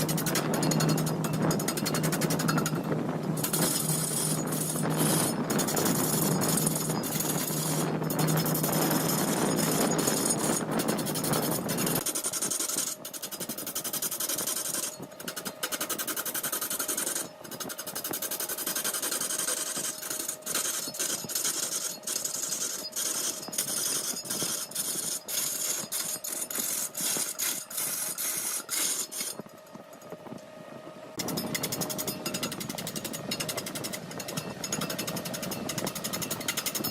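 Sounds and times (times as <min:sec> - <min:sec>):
wood lathe cutting wood: 0:00.0 - 0:29.4, 0:31.3 - 0:36.9.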